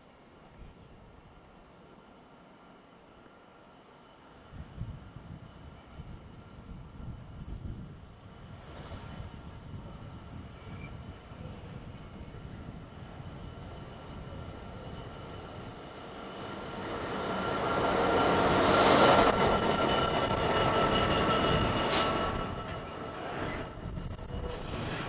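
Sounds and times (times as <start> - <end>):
diesel locomotive engine: 0.1 - 25.0.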